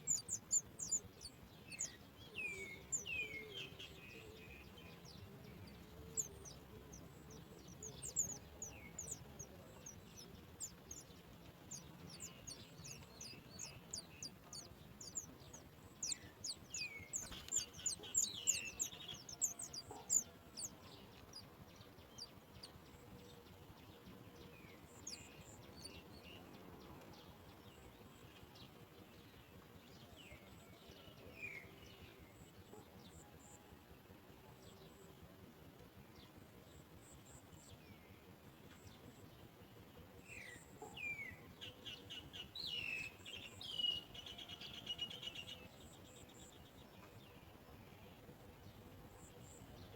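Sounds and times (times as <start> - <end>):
lower bird calls: 0.0 - 4.8, 5.6 - 21.4
small birds chirping: 0.0 - 49.9.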